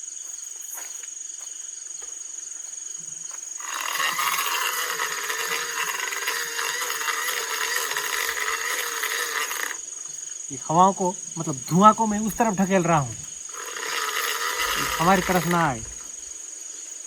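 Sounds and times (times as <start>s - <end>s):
crickets chirping: 0.0s - 17.0s
blower rushing air: 11.4s - 16.3s.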